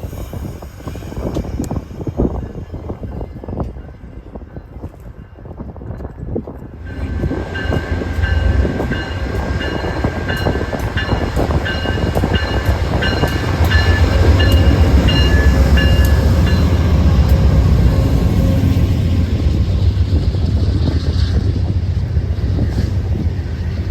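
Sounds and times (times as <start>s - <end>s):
train rumbling past: 0.0s - 23.9s
locomotive bell ringing: 6.9s - 19.0s.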